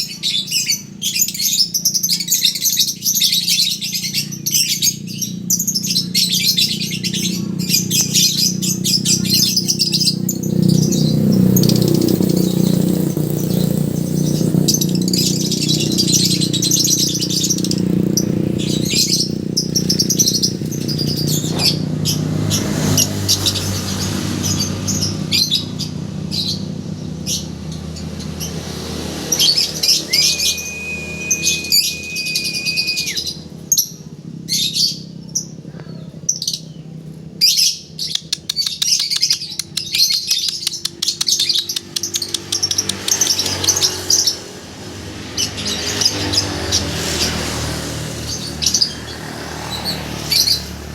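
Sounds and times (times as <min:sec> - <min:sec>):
lovebirds chirping: 0:00.0 - 0:44.5
whistle-like tone: 0:29.4 - 0:33.5.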